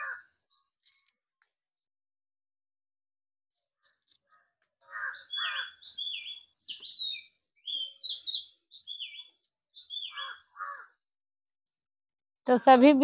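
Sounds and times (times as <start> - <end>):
small bird whistled notes: 5.3 - 10.4.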